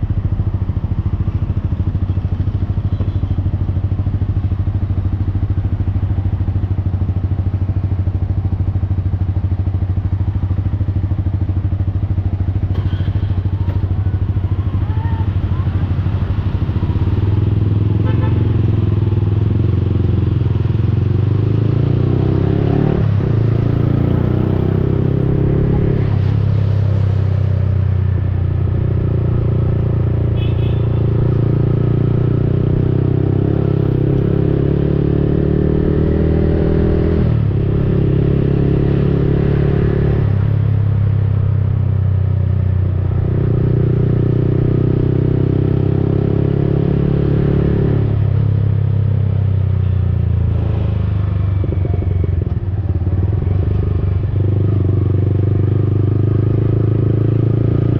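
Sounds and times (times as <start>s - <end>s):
motorcycle engine exhaust note: 27.7s - 35.2s.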